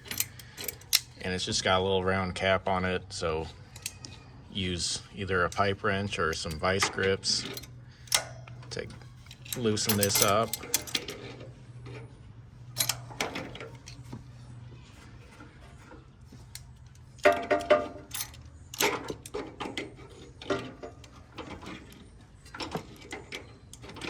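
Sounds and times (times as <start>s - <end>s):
metal tool clinking on cap: 6.3s - 11.4s, 12.8s - 14.0s, 17.2s - 19.4s.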